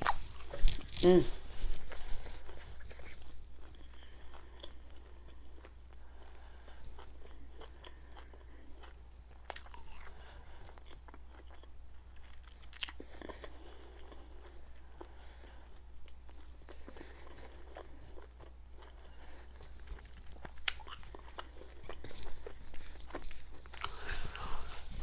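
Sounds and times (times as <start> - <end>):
low steady hum: 0.0 - 25.0
mouth chewing clicks and smacks: 16.0 - 24.2.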